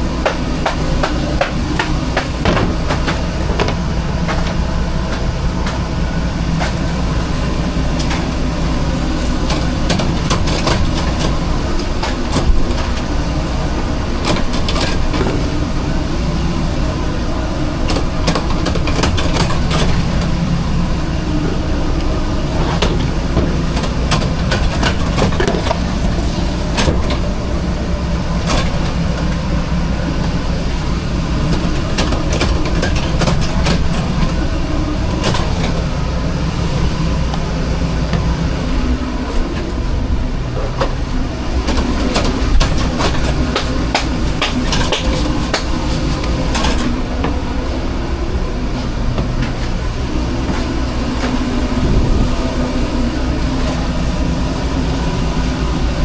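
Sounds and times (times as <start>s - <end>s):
low machine drone: 0.0s - 56.0s
clatter and knocks of prep work: 0.2s - 5.8s, 9.4s - 13.1s, 17.9s - 20.3s, 22.6s - 27.3s, 31.5s - 34.3s, 41.6s - 47.4s.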